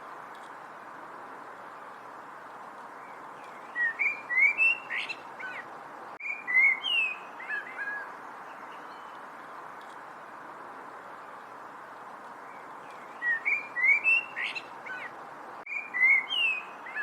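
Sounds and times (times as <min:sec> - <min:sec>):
steady background hiss: 0:00.0 - 0:17.0
songbird whistling: 0:03.4 - 0:05.6, 0:06.2 - 0:08.1, 0:13.0 - 0:15.1, 0:15.7 - 0:17.0.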